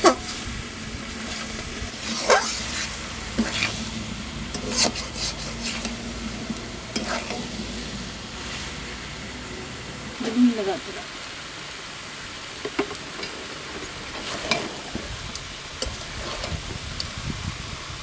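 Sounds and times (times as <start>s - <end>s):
utensil stirring and scraping: 0.0s - 10.4s, 13.2s - 17.1s
spices sizzling in a pan: 0.0s - 17.9s.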